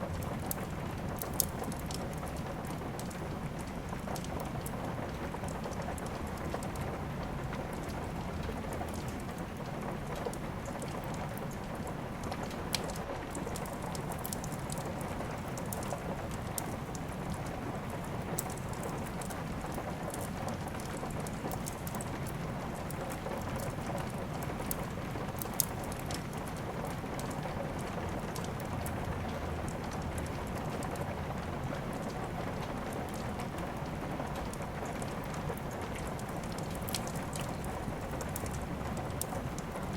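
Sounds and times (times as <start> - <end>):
fireplace fire crackling and popping: 0.0 - 39.9
steady rain hiss: 0.0 - 39.9.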